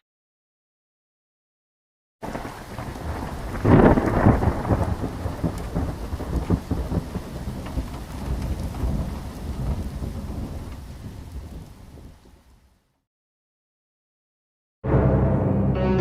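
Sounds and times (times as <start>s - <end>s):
thunder rumbling: 2.2s - 12.6s
steady rain: 2.2s - 12.9s.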